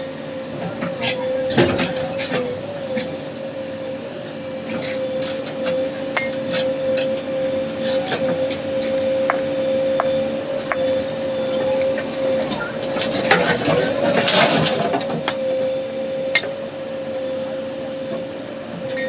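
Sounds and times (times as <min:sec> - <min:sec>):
backhoe loader whining: 0:04.6 - 0:18.4.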